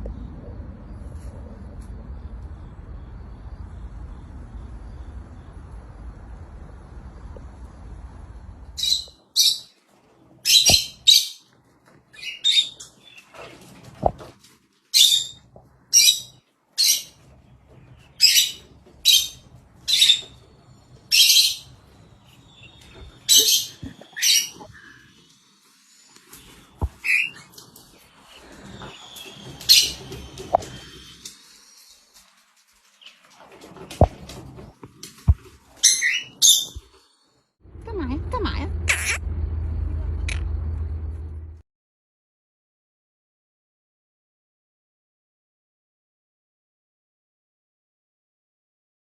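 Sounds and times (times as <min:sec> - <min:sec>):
parrot shrill calls: 0:35.8 - 0:36.8, 0:38.9 - 0:39.2.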